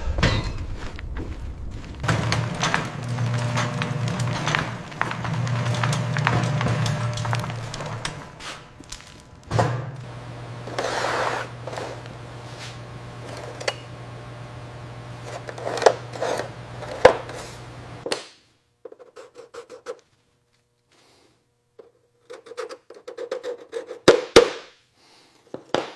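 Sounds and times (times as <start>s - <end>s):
steady low hum: 0.0s - 18.1s
rubbing and scraping: 1.9s - 18.0s.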